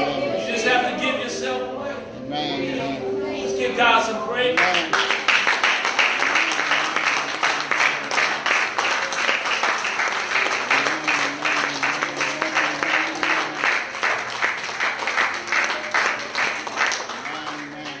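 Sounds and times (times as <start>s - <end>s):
congregation clapping rhythmically: 4.6s - 18.0s.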